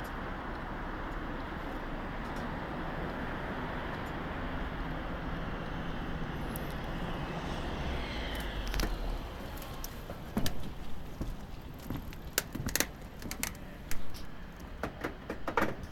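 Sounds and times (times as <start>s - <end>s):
vehicle rushing by: 4.6s - 11.8s
sharp clicks and knocks: 12.0s - 15.9s.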